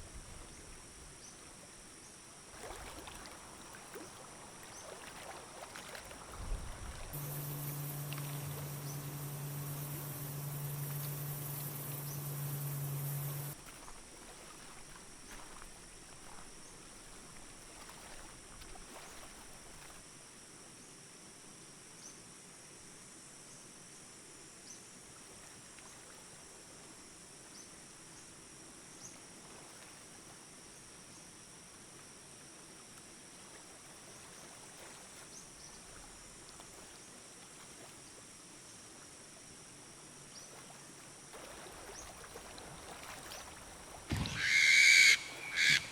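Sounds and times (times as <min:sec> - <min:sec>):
crickets droning: 0:02.1 - 0:13.6, 0:39.4 - 0:45.9
faint insect chirps: 0:06.9 - 0:13.6, 0:43.3 - 0:45.9
loud low tone: 0:07.2 - 0:13.6.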